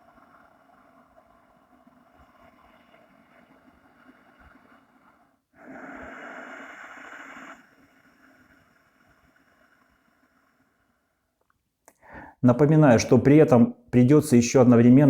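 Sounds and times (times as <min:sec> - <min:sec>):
raspy breathing through throat: 0:02.3 - 0:12.4.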